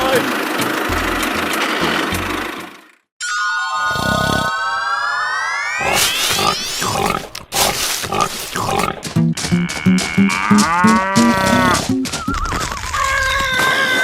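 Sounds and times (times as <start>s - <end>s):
rising whistle: 3.2s - 6.8s, 12.0s - 12.9s
arching pitched tone: 3.3s - 12.6s
scattered clicks: 6.3s - 13.1s
stepping run of notes: 8.0s - 12.8s.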